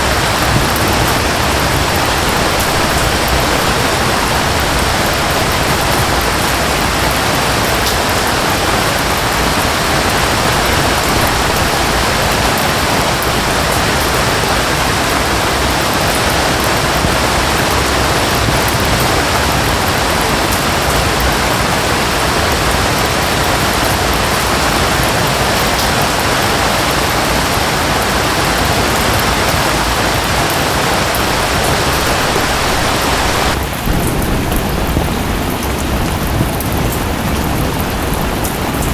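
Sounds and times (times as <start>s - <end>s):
waterfall rushing: 0.0s - 34.4s
rain: 0.0s - 38.9s.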